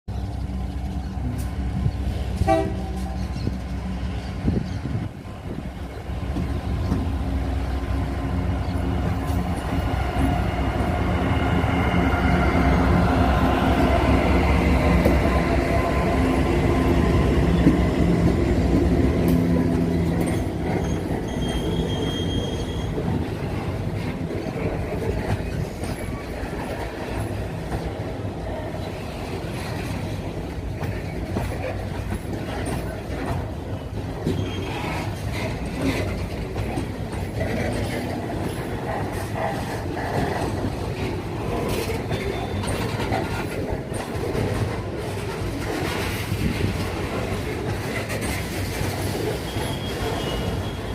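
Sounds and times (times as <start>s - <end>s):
locomotive engine: 0.1s - 50.9s
train wheels clattering over rail joints: 17.4s - 50.9s
train wheel squeals: 19.2s - 23.6s, 24.8s - 27.8s, 30.8s - 39.3s, 41.4s - 50.9s.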